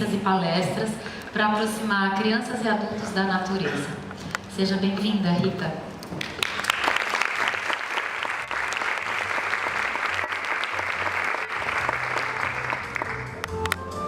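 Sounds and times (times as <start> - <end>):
audience applauding: 6.2 - 13.8.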